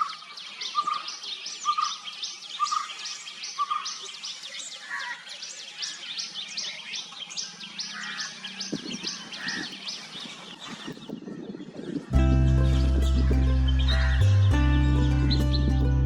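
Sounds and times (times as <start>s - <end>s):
high bird chirps: 5.8s - 15.9s.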